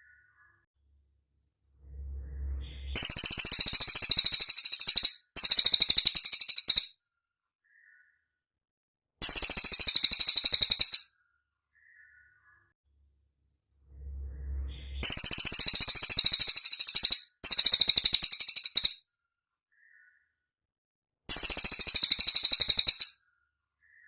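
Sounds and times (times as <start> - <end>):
faint low rumble: 0.1 - 3.8, 12.9 - 15.7
bird singing high-pitched trills: 1.9 - 6.9, 9.2 - 11.1, 14.0 - 19.0, 21.3 - 23.2.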